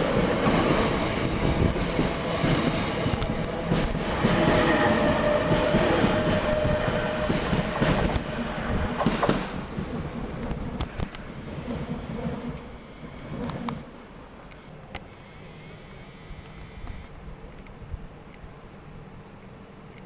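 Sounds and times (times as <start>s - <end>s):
train wheels rumbling on rails: 0.0s - 13.9s
wheel squeal: 4.0s - 10.3s.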